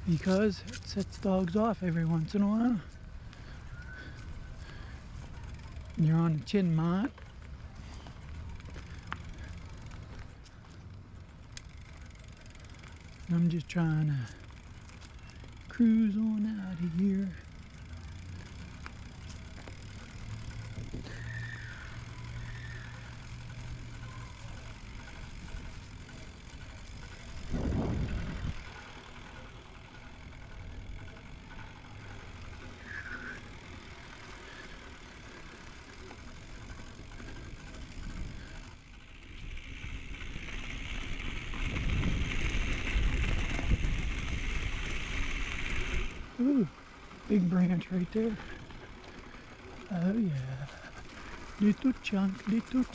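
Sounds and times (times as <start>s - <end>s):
bike tyres rumbling: 0.0s - 52.9s
wind on microphone: 27.5s - 28.6s.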